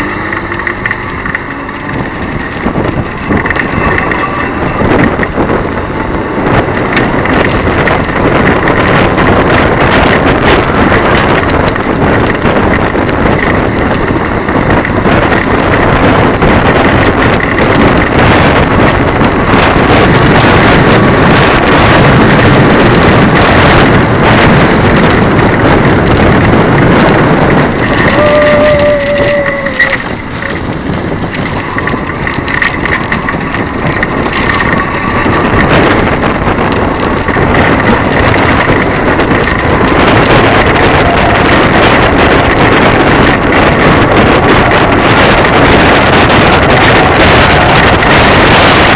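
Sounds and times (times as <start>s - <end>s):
wind rushing over microphone: 0.0s - 48.9s.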